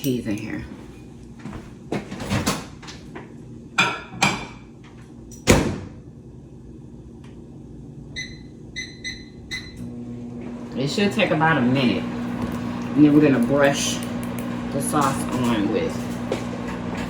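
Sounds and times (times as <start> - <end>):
microwave keypad beeps: 8.1 - 9.9.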